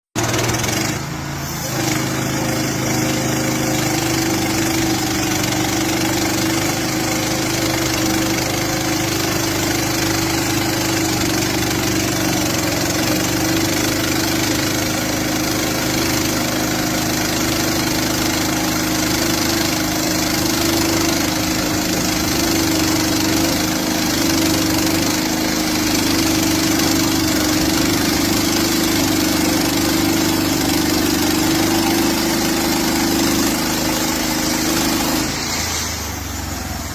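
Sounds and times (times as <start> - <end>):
gas engine running steadily: 0.2 - 36.9.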